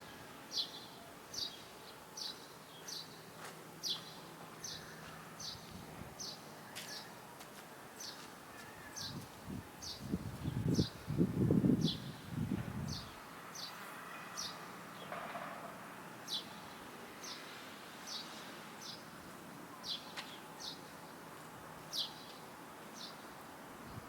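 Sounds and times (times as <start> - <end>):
outdoor background noise: 0.0 - 24.0
sparrow chirping: 11.8 - 13.8.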